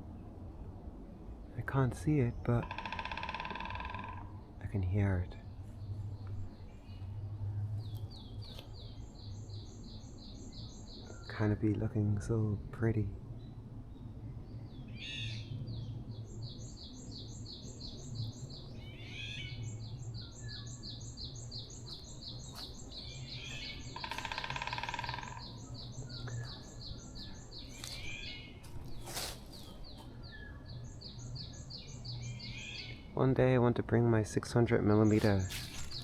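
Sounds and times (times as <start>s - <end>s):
steady low hum: 3.8s - 36.0s
birds sliding calls: 21.4s - 30.2s, 35.1s - 36.0s
harsh buzzy bird call: 23.0s - 28.5s
bird repeating high note: 23.6s - 25.5s.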